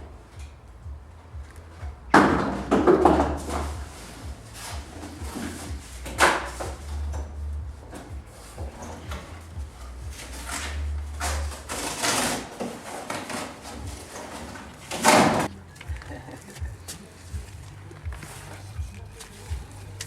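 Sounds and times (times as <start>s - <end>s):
low hum: 0.0s - 12.4s
objects clattering and rustling: 1.4s - 20.0s.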